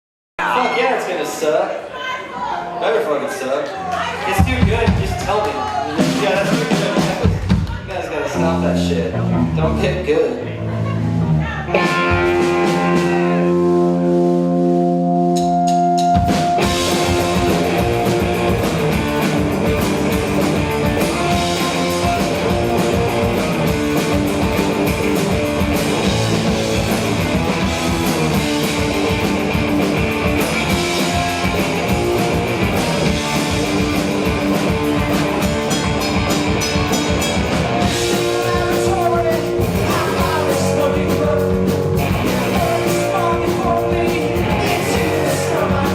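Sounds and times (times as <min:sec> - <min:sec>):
rock band playing: 0:00.4 - 0:45.9
guitar ringing held notes: 0:11.8 - 0:39.8.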